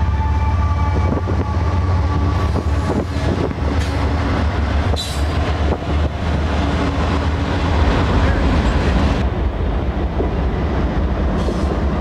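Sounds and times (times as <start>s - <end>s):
train rumbling by: 0.0s - 12.0s.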